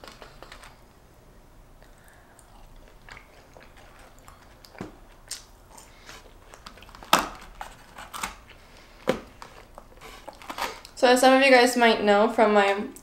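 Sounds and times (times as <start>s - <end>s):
person chewing crunchy food: 1.8s - 11.0s.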